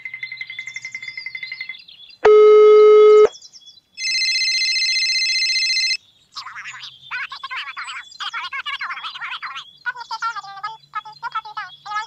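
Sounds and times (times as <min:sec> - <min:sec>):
low electronic buzz tone: 0:02.3 - 0:03.3.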